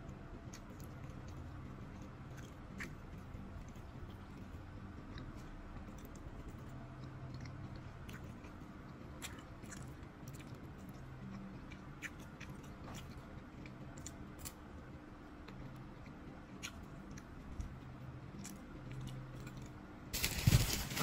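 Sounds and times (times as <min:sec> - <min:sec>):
low steady hum: 0:00.0 - 0:21.0
person chewing: 0:00.5 - 0:14.6.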